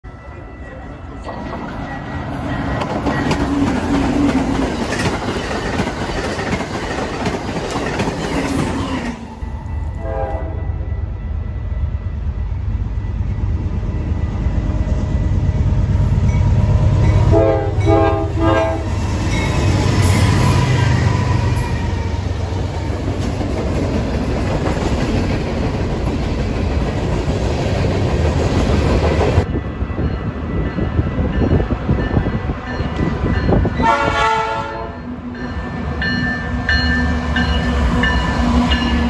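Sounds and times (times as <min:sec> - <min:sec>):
passenger train passing: 0:00.0 - 0:39.0
train air horn blasts: 0:10.0 - 0:10.9, 0:17.2 - 0:19.0, 0:33.8 - 0:35.1.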